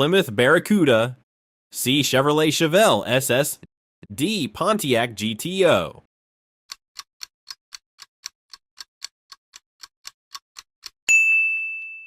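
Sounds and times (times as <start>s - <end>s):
bell-like ding: 11.1s - 12.0s.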